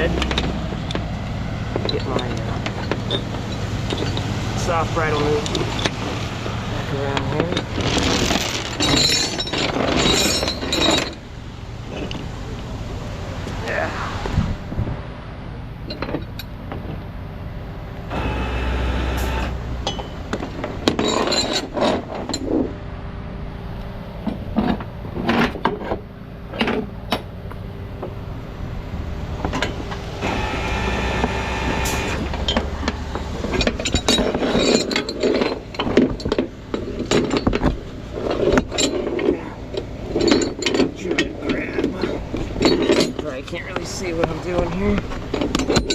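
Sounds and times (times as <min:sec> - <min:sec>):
winch and hydraulics running: 0:00.0 - 0:45.9
chains and hooks clinking: 0:01.8 - 0:11.3, 0:18.2 - 0:22.6, 0:29.4 - 0:45.9.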